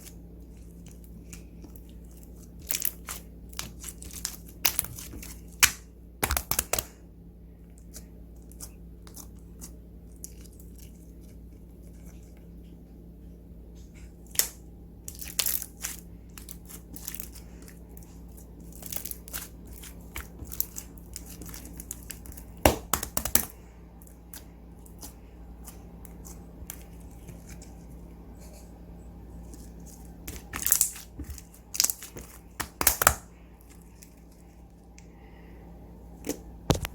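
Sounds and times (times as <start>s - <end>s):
slime squishing with sticky pops: 0.0s - 7.0s, 14.2s - 27.9s, 29.5s - 35.0s.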